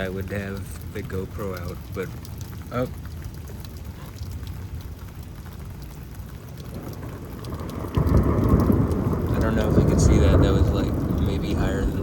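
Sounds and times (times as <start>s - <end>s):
steady rain: 0.0s - 12.0s
deep thunder rumble: 6.6s - 12.0s.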